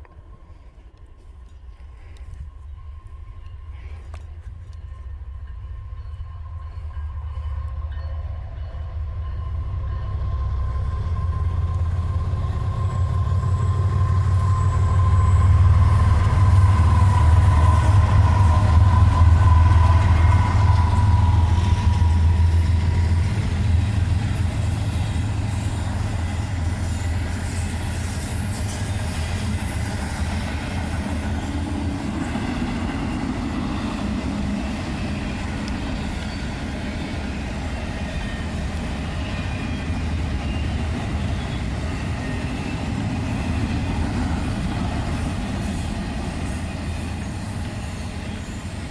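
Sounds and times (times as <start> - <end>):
freight train passing: 0.0 - 48.9.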